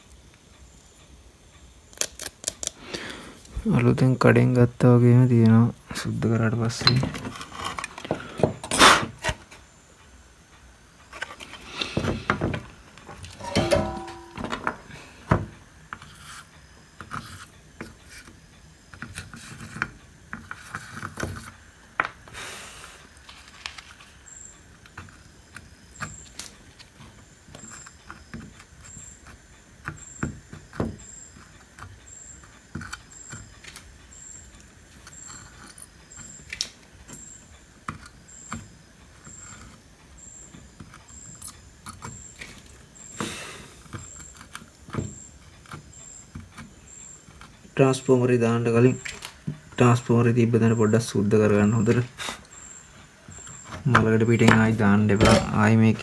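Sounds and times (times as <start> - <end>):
clicks knocks and scraping: 6.7 - 9.5, 11.2 - 16.1, 53.3 - 56.0.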